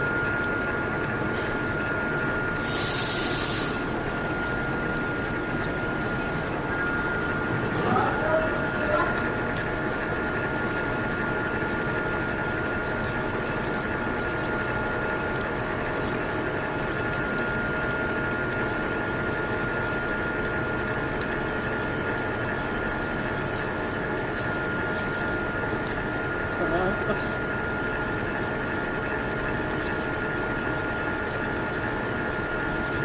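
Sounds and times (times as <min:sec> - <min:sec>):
metalworking machine whine: 0:00.0 - 0:11.8.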